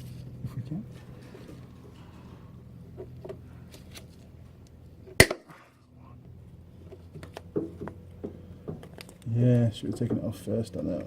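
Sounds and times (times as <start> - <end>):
sharp loud metal snap: 5.2 - 5.5.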